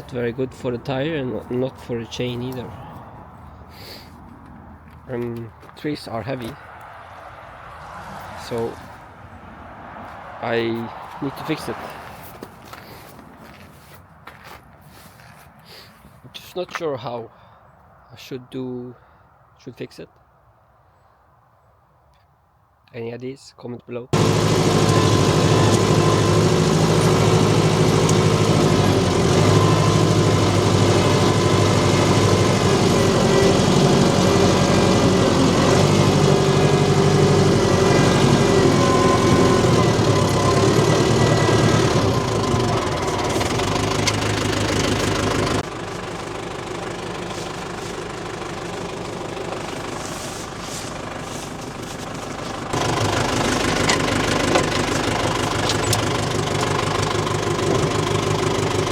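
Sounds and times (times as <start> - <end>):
tractor engine running: 0.0 - 6.6, 24.2 - 58.9.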